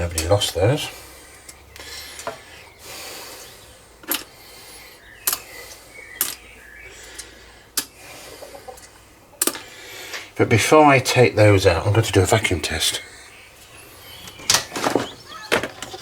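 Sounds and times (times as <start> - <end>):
tools set down on metal workbench: 14.4 - 16.0.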